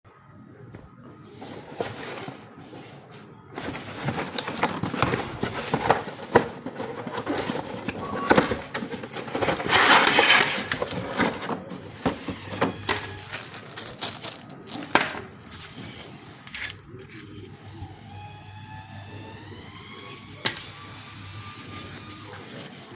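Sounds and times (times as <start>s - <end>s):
packaging rustling and crinkling: 1.4s - 17.5s.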